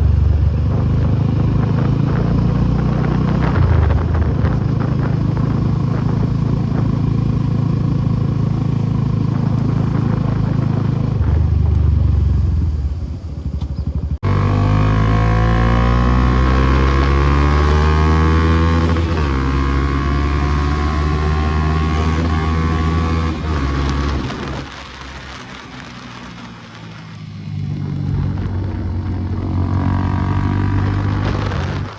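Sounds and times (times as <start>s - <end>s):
motorcycle engine accelerating: 0.0s - 31.9s.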